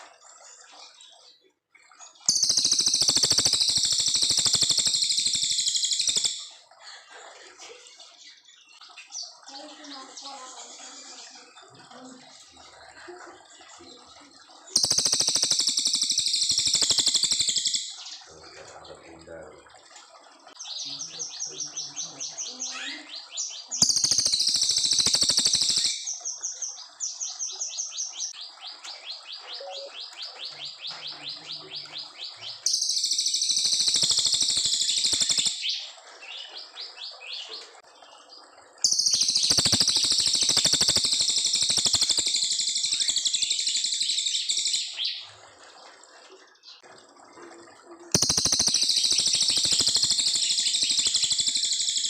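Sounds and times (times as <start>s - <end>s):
faint bird chirps: 0.0s - 19.6s, 20.5s - 45.4s, 47.5s - 52.0s
bird singing rapid trill: 2.2s - 6.6s, 14.7s - 18.9s, 20.6s - 37.5s, 38.8s - 45.3s, 48.1s - 52.0s.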